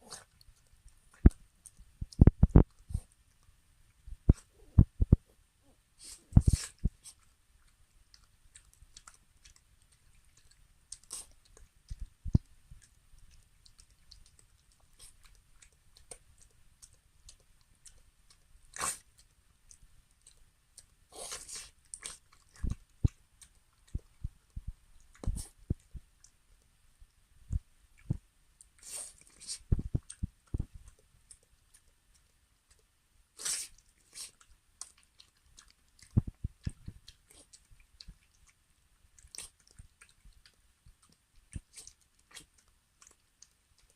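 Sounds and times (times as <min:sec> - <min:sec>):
dog chewing and crunching: 0:06.4 - 0:26.4, 0:28.0 - 0:43.9.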